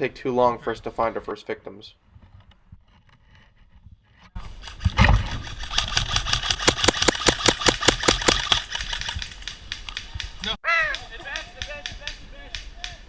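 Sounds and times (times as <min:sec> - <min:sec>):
airsoft guns firing: 0:06.4 - 0:10.3.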